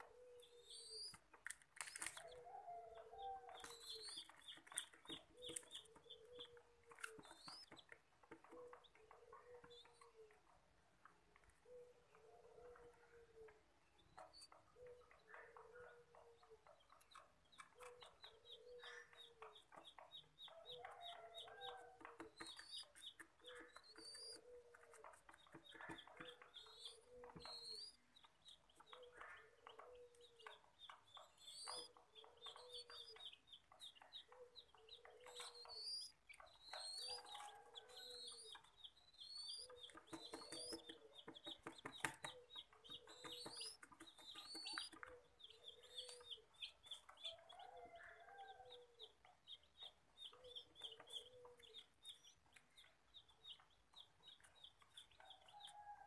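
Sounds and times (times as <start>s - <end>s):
low clucking bird notes: 0.0s - 10.6s.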